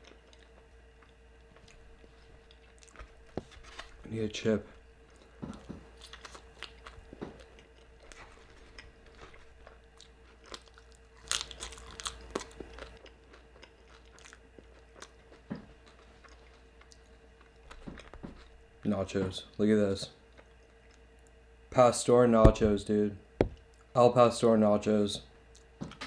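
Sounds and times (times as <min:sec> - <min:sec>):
tortilla chip being chewed: 0:00.0 - 0:04.1, 0:05.0 - 0:18.6.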